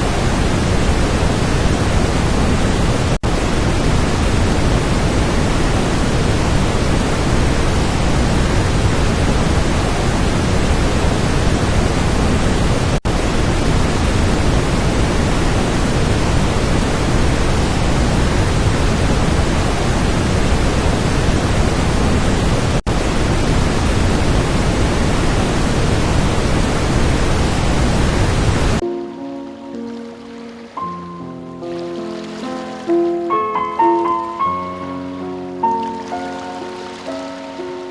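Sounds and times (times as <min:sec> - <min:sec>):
waterfall rushing: 0:26.5 - 0:37.9.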